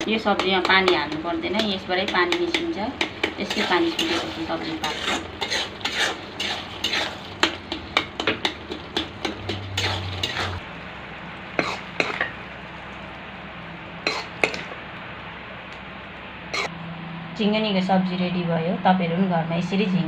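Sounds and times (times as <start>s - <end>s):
spoon scraping a pan: 0.3s - 10.6s, 11.6s - 12.4s, 14.0s - 14.8s, 16.5s - 16.7s.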